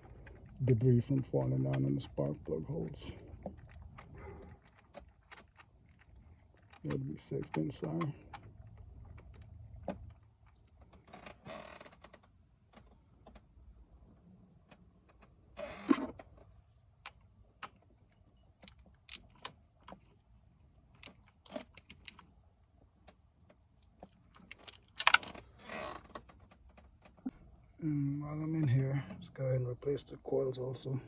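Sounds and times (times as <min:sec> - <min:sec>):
light clicks and knocks of tools: 0:00.0 - 0:11.1, 0:17.0 - 0:20.2, 0:20.9 - 0:22.3, 0:23.0 - 0:27.3.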